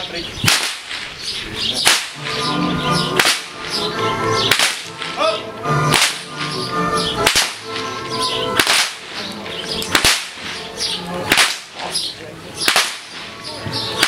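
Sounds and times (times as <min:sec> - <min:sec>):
whip cracking: 0:00.4 - 0:01.2, 0:01.8 - 0:02.4, 0:03.2 - 0:03.8, 0:04.5 - 0:05.3, 0:05.9 - 0:06.6, 0:07.2 - 0:07.9, 0:08.6 - 0:12.0, 0:12.6 - 0:13.4
background music: 0:01.8 - 0:14.0.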